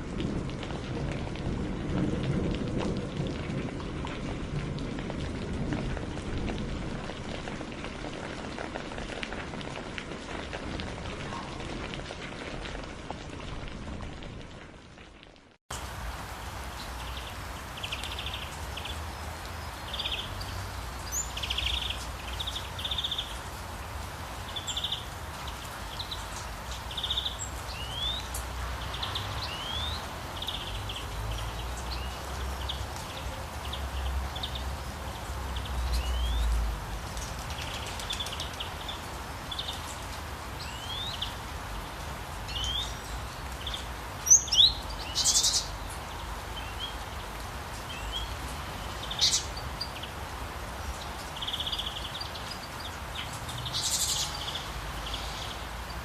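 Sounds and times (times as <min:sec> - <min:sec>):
small birds chirping: 0:16.7 - 0:23.6, 0:24.2 - 0:56.0.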